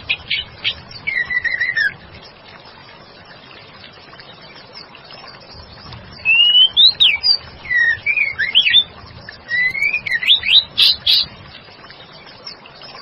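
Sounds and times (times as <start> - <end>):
bird singing whistled notes: 0.0 - 2.0, 5.2 - 11.4.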